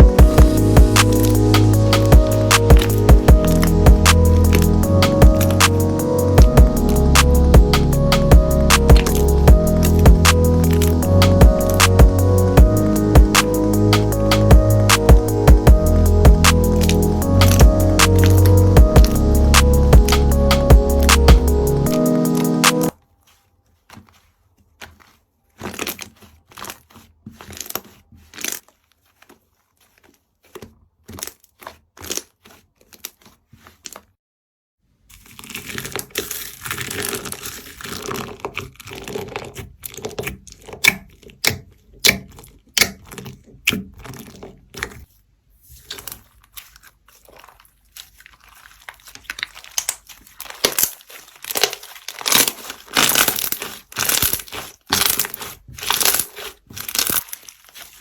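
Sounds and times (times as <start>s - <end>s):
slime crackling and popping: 24.8s - 28.8s, 35.2s - 45.1s, 45.8s - 58.0s.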